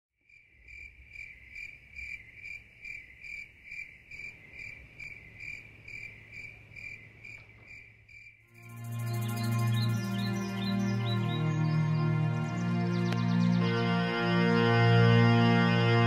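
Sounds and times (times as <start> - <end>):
cricket chirping: 0.2 - 13.1.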